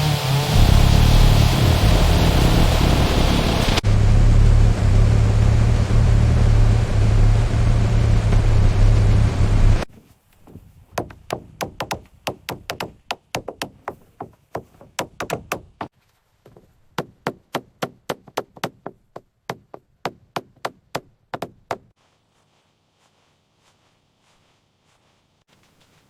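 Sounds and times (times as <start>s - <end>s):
hammering on wood: 10.5s - 15.9s, 17.0s - 21.9s.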